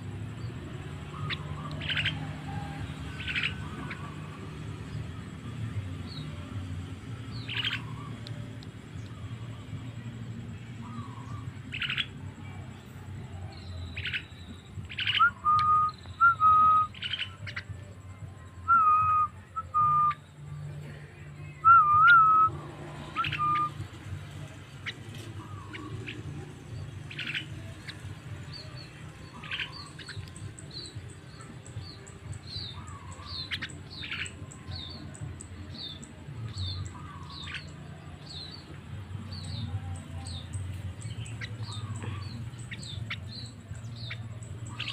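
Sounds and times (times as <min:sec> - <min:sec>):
myna bird whistling calls: 0:01.1 - 0:04.4, 0:07.3 - 0:08.4, 0:13.6 - 0:17.8, 0:18.6 - 0:20.5, 0:21.6 - 0:38.7, 0:39.3 - 0:44.9.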